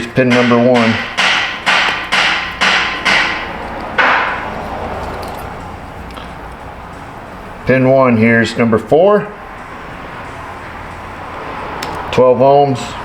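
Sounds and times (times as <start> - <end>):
sharp metallic hammer strikes: 0.0 - 4.6
ringing metal blow: 0.0 - 5.9.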